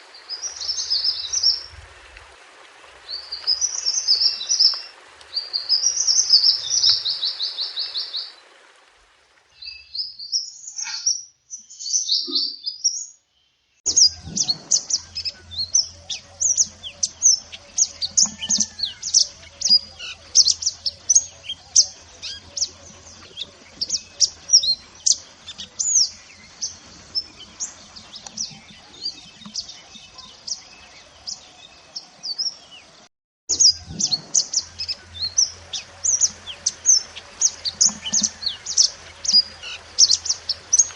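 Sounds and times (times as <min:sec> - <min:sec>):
faint low hum: 0:13.9 - 0:32.0, 0:33.5 - 0:40.9
bird trilling and chirping: 0:13.9 - 0:32.8, 0:33.5 - 0:40.9.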